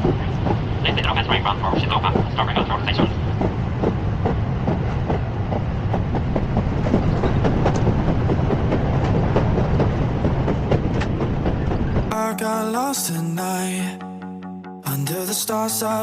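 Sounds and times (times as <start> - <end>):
train wheels clicking: 0.0 - 12.1
train running on rails: 0.0 - 13.1.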